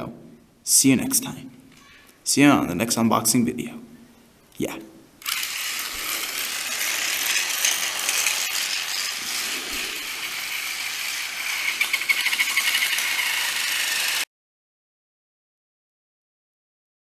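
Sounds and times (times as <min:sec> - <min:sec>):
toy train motor whirring: 0:05.2 - 0:14.3.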